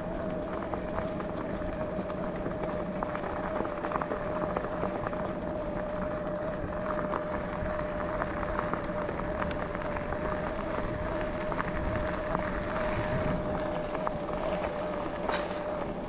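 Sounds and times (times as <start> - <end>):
electric bike motor whining: 0.0 - 16.0
small clicks from track: 0.0 - 16.0
tyres rolling with crackling: 0.0 - 16.0.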